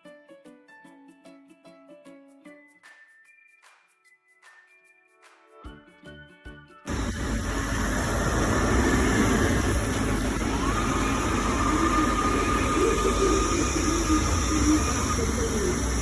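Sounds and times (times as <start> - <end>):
robot vacuum suction motor whine: 6.9 - 16.0.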